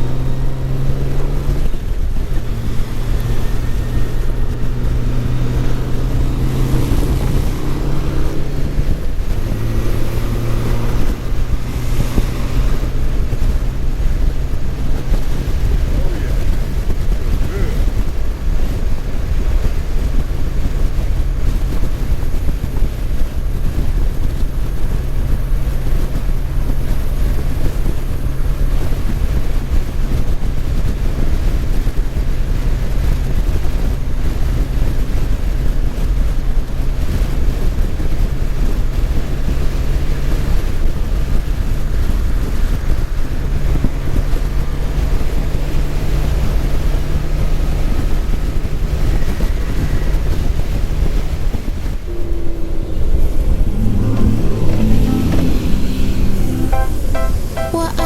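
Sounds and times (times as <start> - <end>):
motorcycle engine running: 0.0 - 46.1
wind buffeting on microphone: 0.0 - 55.0.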